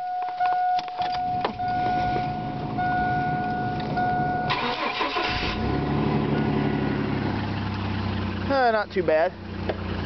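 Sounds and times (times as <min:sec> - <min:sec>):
electronic warning tone: 0:00.0 - 0:04.9
car engine idling: 0:01.1 - 0:10.0
starter motor cranking: 0:04.5 - 0:05.8.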